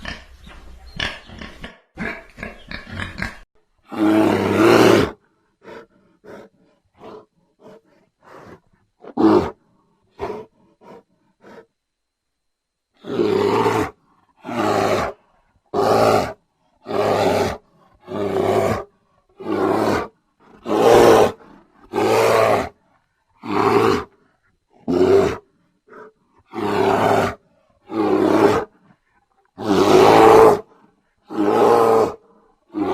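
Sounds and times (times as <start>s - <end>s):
large animal grunting: 0.0s - 9.6s, 24.8s - 32.9s
large animal long loud calls: 24.8s - 28.9s, 29.5s - 32.9s.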